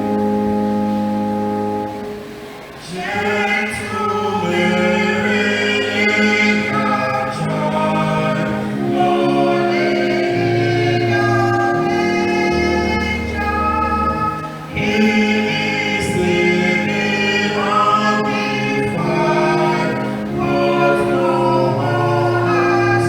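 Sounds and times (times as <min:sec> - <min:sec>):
organ chords: 0:00.0 - 0:23.0
choir singing: 0:02.8 - 0:23.0.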